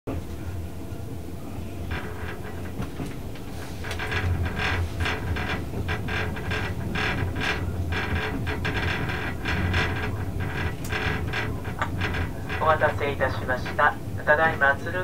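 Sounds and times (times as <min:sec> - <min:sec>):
train wheels rumbling on rails: 0:00.1 - 0:15.0
wheels clacking over rail joints: 0:01.8 - 0:14.0.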